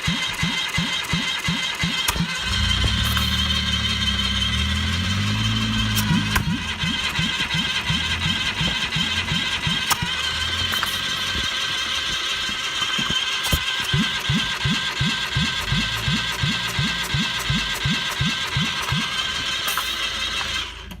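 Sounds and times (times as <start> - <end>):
steady higher hum: 0.0 - 19.6
engine turning over: 0.0 - 21.0.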